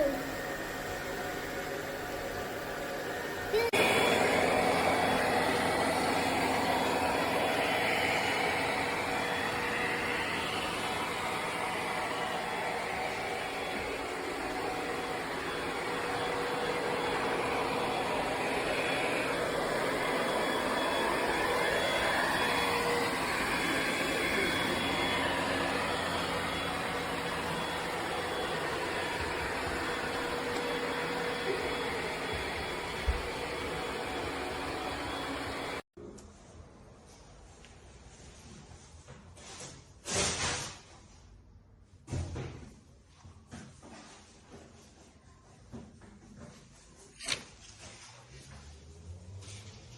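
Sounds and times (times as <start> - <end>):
robot vacuum motor whirring: 13.7 - 35.8.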